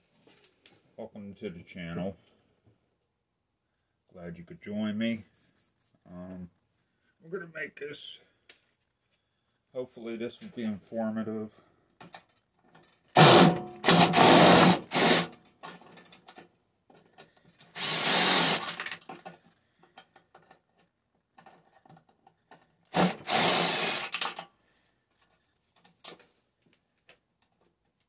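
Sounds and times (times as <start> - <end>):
power drill running: 13.2 - 15.3, 17.7 - 19.0, 22.9 - 24.4.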